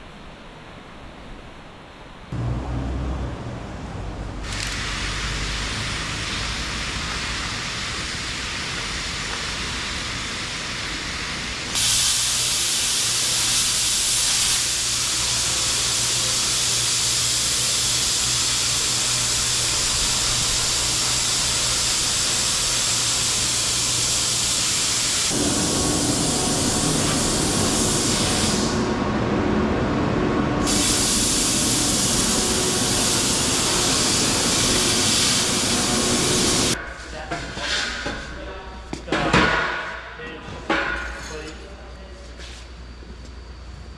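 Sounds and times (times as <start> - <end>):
deep rumble: 2.3 - 5.9
loud steady hissing: 2.3 - 29.0, 30.6 - 38.8.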